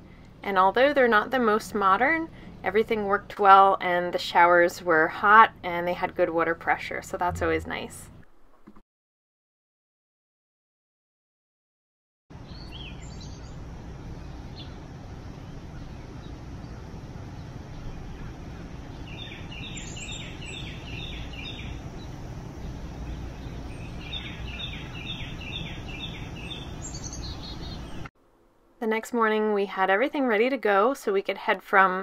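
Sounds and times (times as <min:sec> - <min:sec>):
low background hum: 0:00.0 - 0:08.7, 0:12.3 - 0:32.0
songbird chirping: 0:12.4 - 0:28.1.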